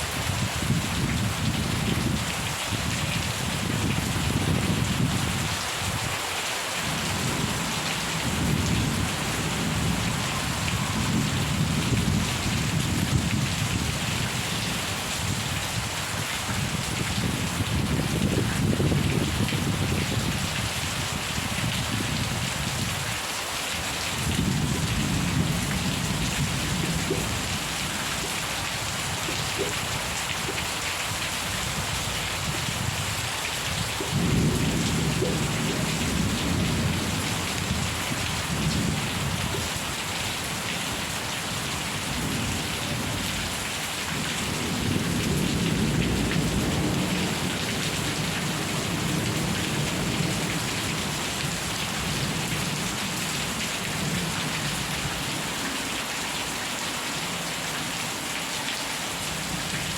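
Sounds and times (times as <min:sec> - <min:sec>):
steady rain: 0:00.0 - 0:59.9
rolling thunder: 0:06.9 - 0:14.4, 0:31.4 - 0:39.6, 0:44.5 - 0:50.8.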